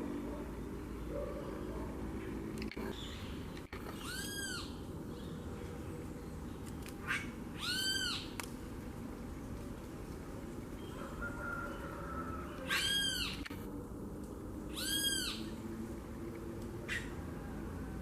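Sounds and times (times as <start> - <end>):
bird calling: 1.0 - 5.4, 7.0 - 8.4, 10.8 - 13.6, 14.7 - 15.6.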